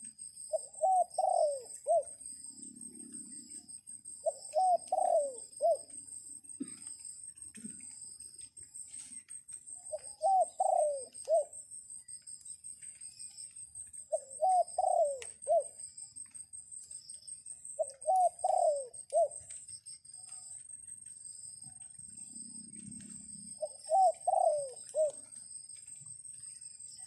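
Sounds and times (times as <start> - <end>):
dove cooing: 0.5 - 6.0, 9.9 - 11.6, 14.1 - 15.8, 17.8 - 19.5, 22.2 - 25.4.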